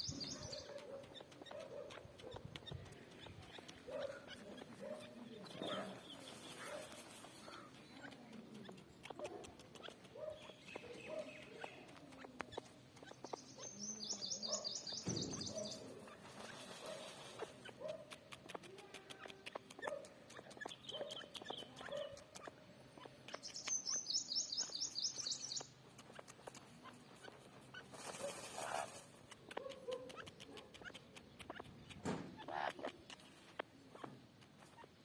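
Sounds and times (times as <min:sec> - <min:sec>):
high chattering bird trill: 0:00.0 - 0:27.9
soft low bird calls: 0:00.0 - 0:35.0
scattered clicks: 0:00.4 - 0:04.8, 0:05.4 - 0:13.7, 0:17.5 - 0:22.6, 0:24.8 - 0:27.6, 0:29.0 - 0:33.7.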